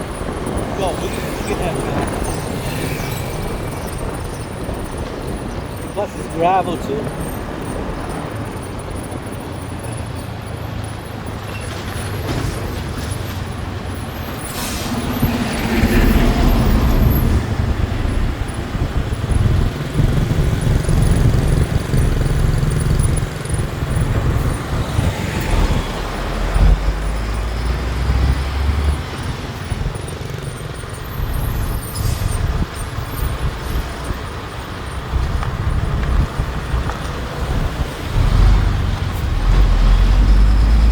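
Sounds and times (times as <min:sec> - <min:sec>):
gravel road noise: 0:00.0 - 0:40.9
motorbike engine: 0:15.0 - 0:40.9.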